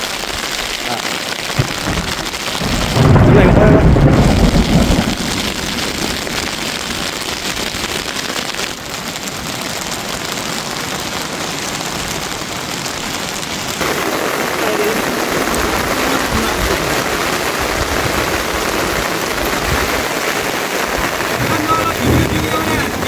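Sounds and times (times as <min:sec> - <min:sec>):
steady rain falling: 0:00.0 - 0:23.0
loud low rumble: 0:02.7 - 0:05.4, 0:21.3 - 0:23.0.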